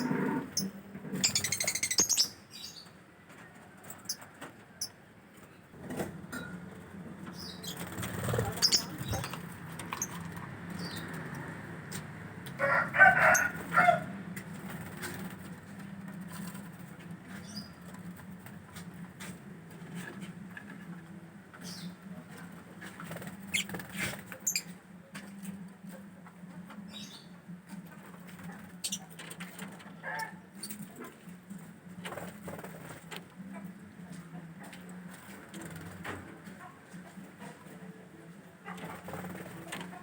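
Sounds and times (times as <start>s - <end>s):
bird chirping trill: 0.5s - 2.8s.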